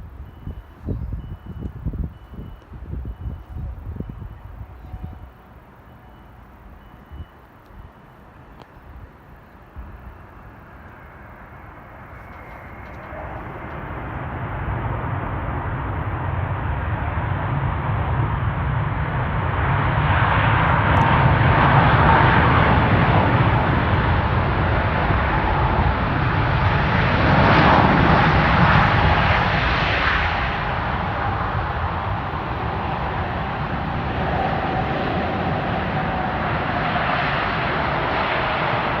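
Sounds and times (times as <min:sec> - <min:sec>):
jet airliner engine roar: 0:00.0 - 0:39.0.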